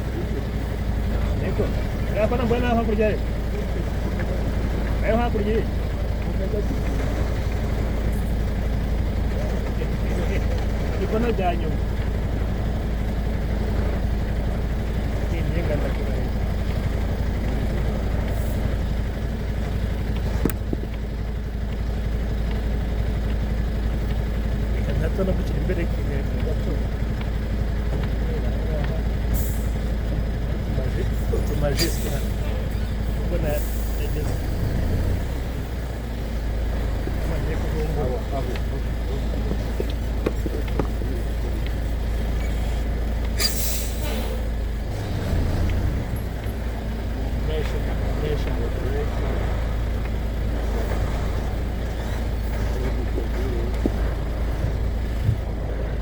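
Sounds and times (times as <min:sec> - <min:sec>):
truck engine running: 0:00.0 - 0:56.0
air brakes hissing: 0:29.3 - 0:29.9, 0:31.7 - 0:32.4, 0:42.4 - 0:44.5
sharp click: 0:43.2 - 0:44.2.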